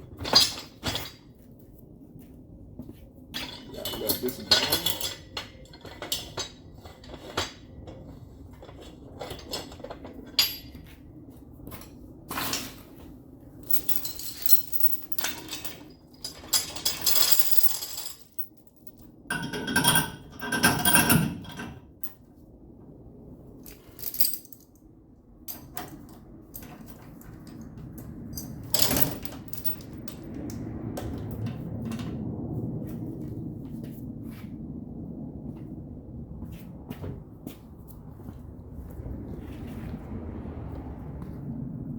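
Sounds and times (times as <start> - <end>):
metal tools clinking: 3.4 - 7.6, 13.6 - 21.8, 23.7 - 24.8, 28.3 - 30.2.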